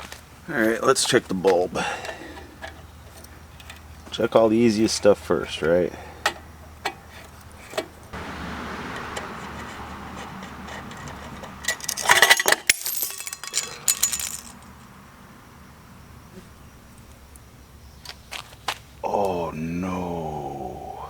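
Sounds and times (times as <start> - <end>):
metallic jingling and rattling: 9.5 - 14.8.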